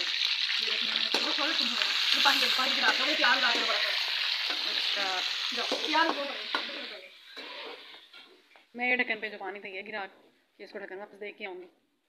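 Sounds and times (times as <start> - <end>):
chicken sizzling in a wok: 0.0 - 8.4.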